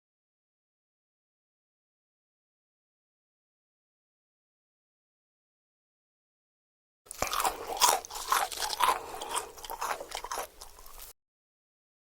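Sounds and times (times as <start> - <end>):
crunchy chewing: 7.1 - 11.2.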